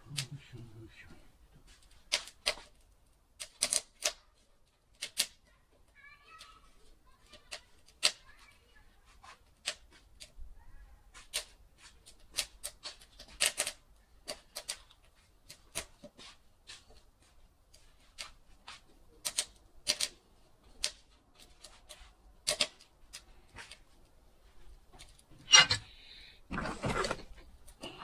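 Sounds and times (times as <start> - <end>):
wood fire crackling and popping: 1.4 - 8.3, 11.2 - 24.2.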